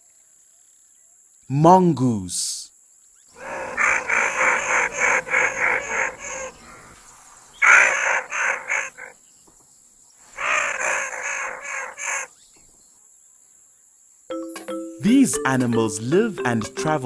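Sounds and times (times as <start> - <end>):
mongoose calling: 3.4 - 9.1, 10.3 - 12.4.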